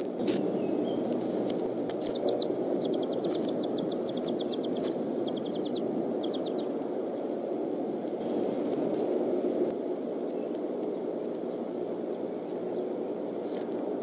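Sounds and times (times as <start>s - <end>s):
steady rushing noise: 0.0s - 14.0s
bird chirping: 0.1s - 6.7s.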